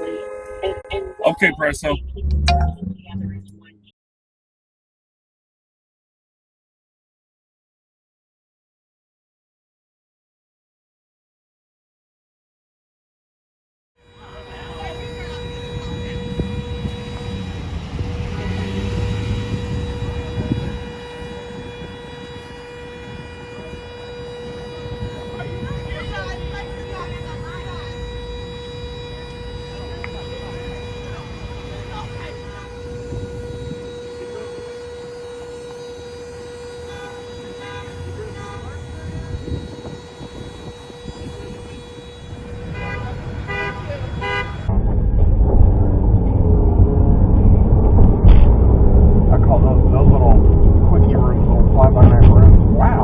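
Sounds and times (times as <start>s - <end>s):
car road and engine rumble: 0.0s - 3.9s, 14.1s - 53.0s
steady high-pitched tone: 0.0s - 3.9s.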